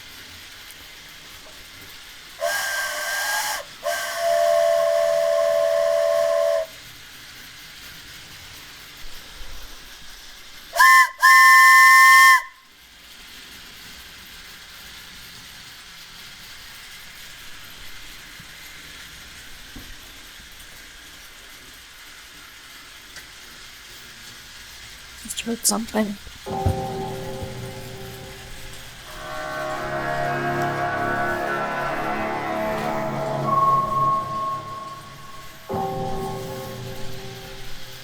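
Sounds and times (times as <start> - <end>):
wooden train whistle blasts: 2.4 - 6.8, 10.7 - 12.7, 25.3 - 38.0.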